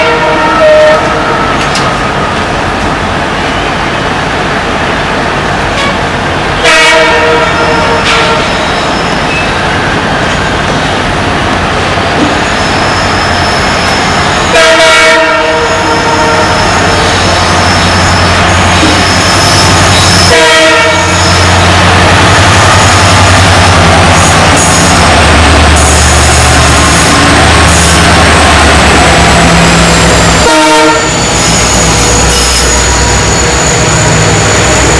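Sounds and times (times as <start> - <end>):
train horn blasts: 0.0 - 1.6, 6.6 - 8.7, 14.4 - 17.2, 20.2 - 21.5, 30.2 - 33.8
diesel locomotive engine rumbling: 0.0 - 34.9.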